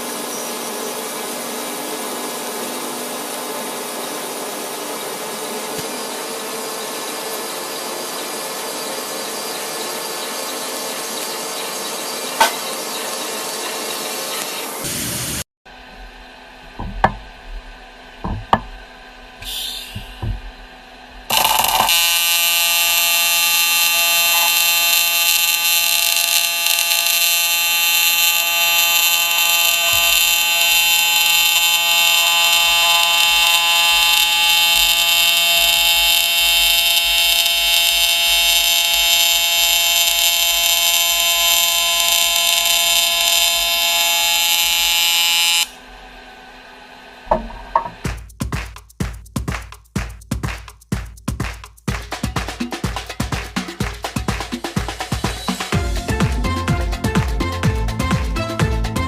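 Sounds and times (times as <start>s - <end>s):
welding arc electric hum: 0.0s - 48.1s
short hiss: 19.4s - 20.2s.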